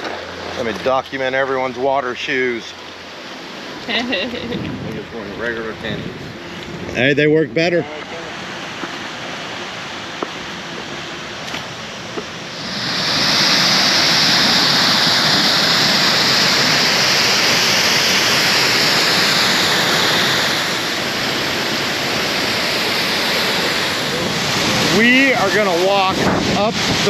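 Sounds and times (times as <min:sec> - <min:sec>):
rushing river water: 0:00.0 - 0:04.6, 0:05.7 - 0:27.0.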